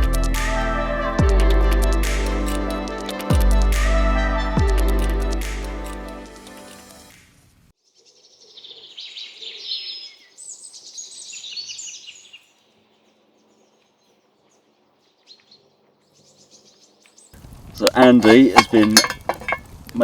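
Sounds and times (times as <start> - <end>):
background music: 0.0 - 7.1
songbird chirping and trilling: 7.8 - 17.4.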